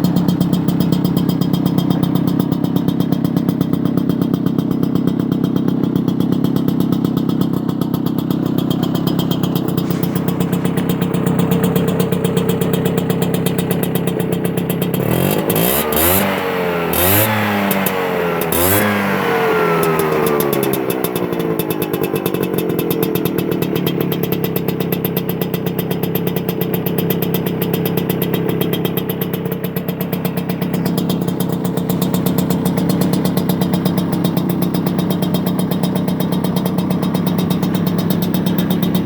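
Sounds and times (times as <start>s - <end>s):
scooter engine idling: 0.0s - 39.0s.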